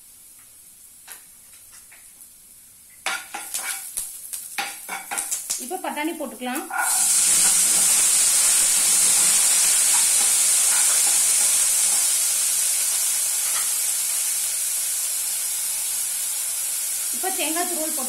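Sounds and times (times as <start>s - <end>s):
peas sizzling in hot oil: 0.0s - 18.0s
spoon scraping pan: 3.1s - 3.9s, 6.7s - 12.2s.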